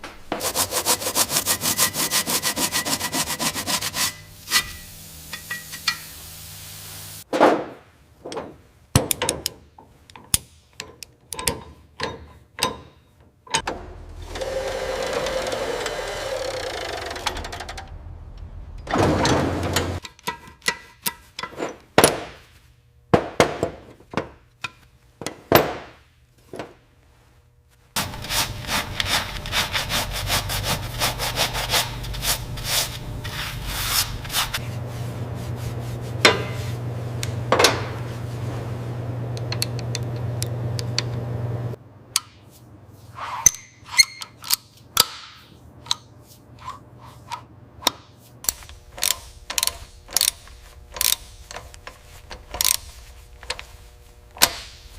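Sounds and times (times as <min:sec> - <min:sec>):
power tool rubbing with low hum: 0:13.8 - 0:18.5, 0:28.0 - 0:41.8, 0:48.5 - 0:54.9.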